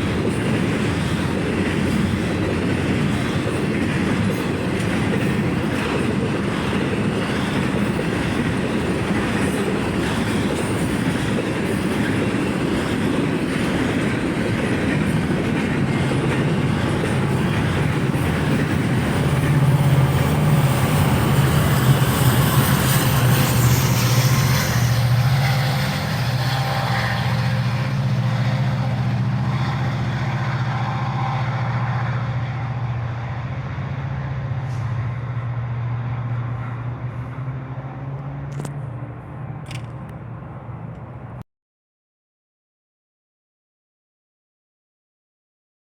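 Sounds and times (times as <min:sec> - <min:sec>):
train wheels clattering: 0:00.0 - 0:33.0
diesel locomotive drone: 0:00.0 - 0:41.4.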